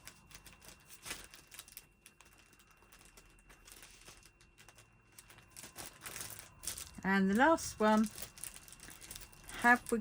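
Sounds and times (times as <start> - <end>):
paper and stickers rustling: 0.0 - 10.0.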